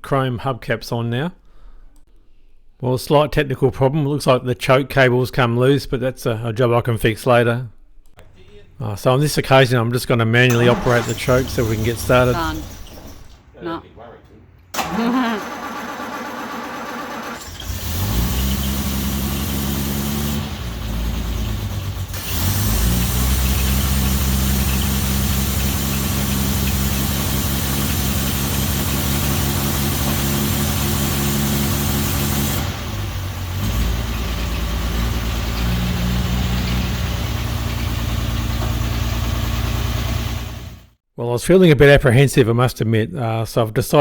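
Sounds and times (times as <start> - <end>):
car engine idling: 10.5 - 13.4, 14.8 - 41.0.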